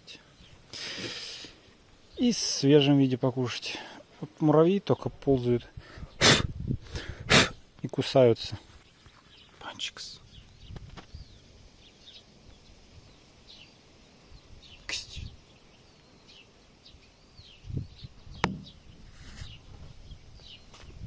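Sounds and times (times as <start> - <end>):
small birds chirping: 0.0 - 21.0
low knocks: 18.4 - 18.8.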